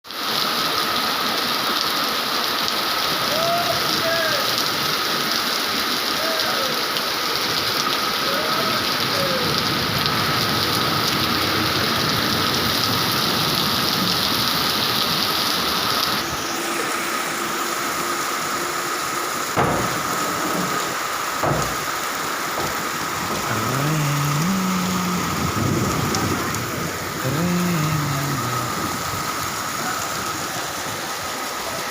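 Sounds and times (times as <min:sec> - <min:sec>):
heavy rain: 0:00.1 - 0:31.9
sharp knocks: 0:19.6 - 0:23.5.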